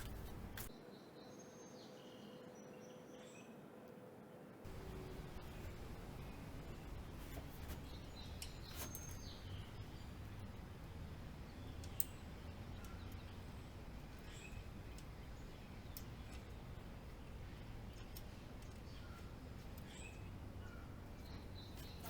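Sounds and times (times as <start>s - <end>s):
hand tools clicking on bicycle parts: 4.7s - 22.0s
low background rumble: 4.7s - 22.0s.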